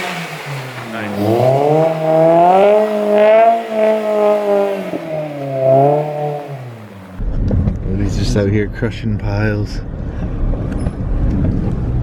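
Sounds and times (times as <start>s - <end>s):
car engine revving hard: 0.0s - 7.2s.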